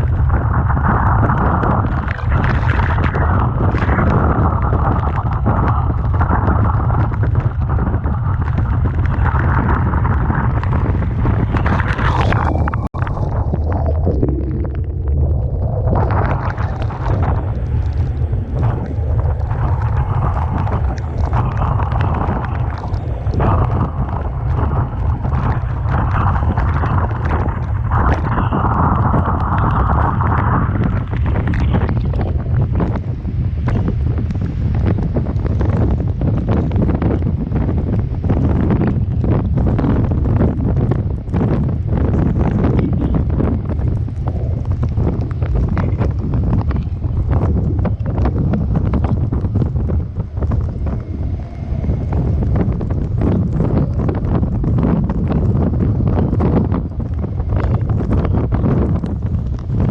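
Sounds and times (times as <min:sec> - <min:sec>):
crashing surf: 0:00.0 - 0:32.8, 0:42.4 - 0:54.6
waves breaking: 0:00.0 - 0:32.9, 0:42.4 - 0:54.6
sharp crackles: 0:00.0 - 0:59.9
wind buffeting microphone: 0:00.0 - 0:59.9.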